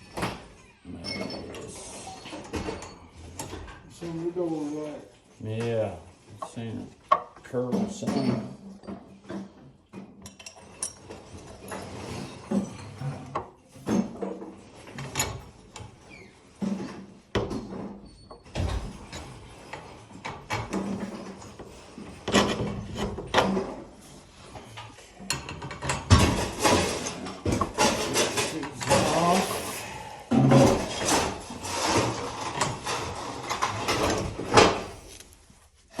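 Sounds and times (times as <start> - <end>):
metal knocks clicks and scraping: 16.6 - 29.7, 30.3 - 35.3.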